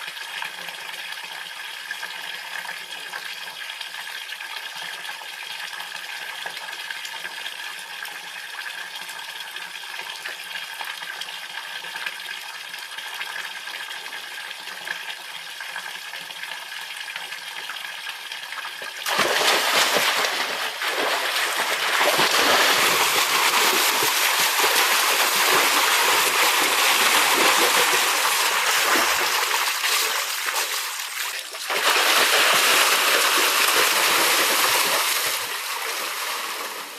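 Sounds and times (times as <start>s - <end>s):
water gushing: 14.0s - 36.9s.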